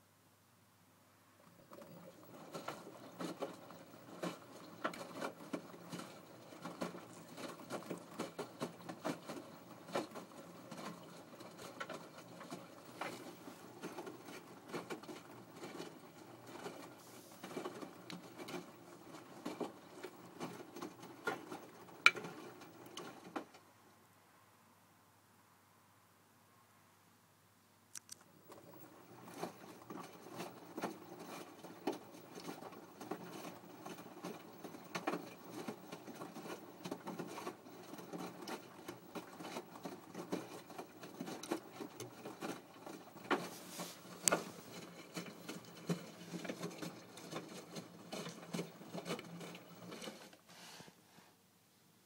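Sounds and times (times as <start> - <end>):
washing machine drum churning: 1.6 - 23.3.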